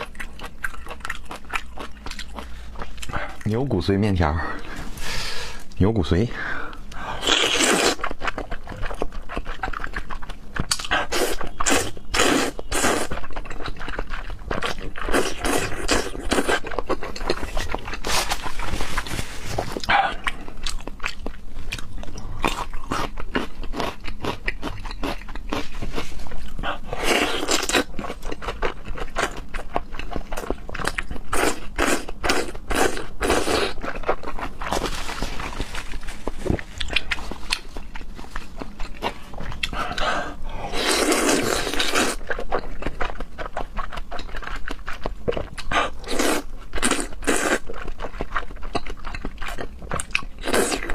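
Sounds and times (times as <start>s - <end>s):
wet chewing: 0.0s - 3.6s, 6.7s - 50.9s.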